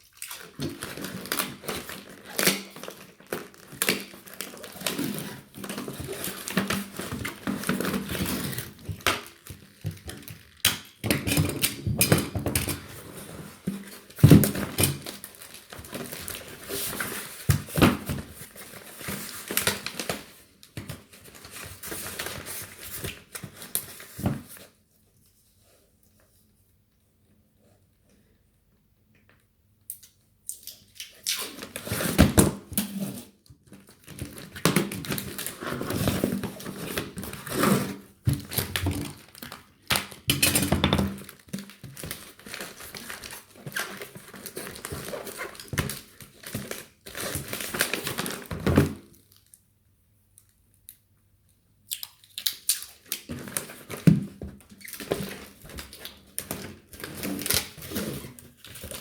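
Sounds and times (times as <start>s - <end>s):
bubble wrap crinkling: 0.2s - 24.8s, 33.7s - 48.5s.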